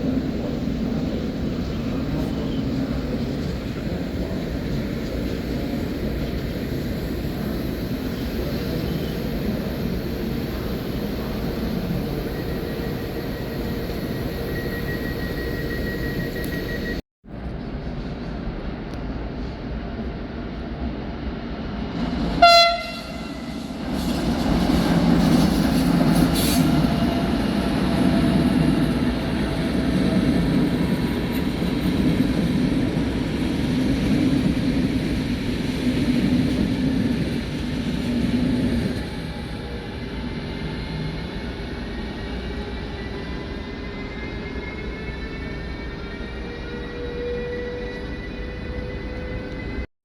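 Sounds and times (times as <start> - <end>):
train rumbling past: 0.0 - 49.9
train horn blast: 22.4 - 23.9, 46.4 - 49.8.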